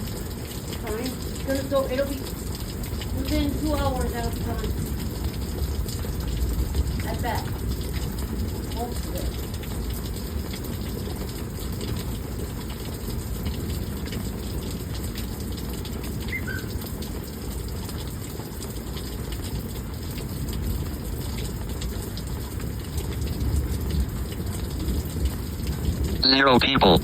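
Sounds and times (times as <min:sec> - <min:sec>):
water dripping: 0:00.0 - 0:26.2
runoff water rushing: 0:00.0 - 0:27.0
high chirps: 0:16.3 - 0:16.8.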